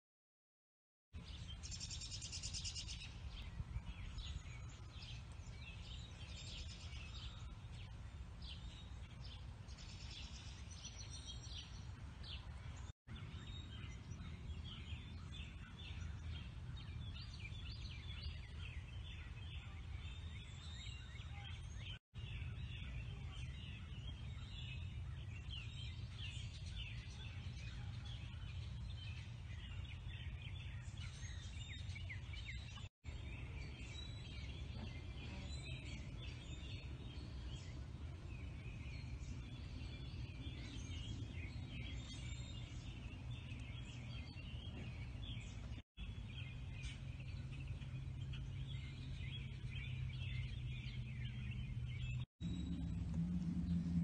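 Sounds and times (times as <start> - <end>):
birds singing and chirping: 1.2 - 54.0
steady low rumble: 36.0 - 54.0.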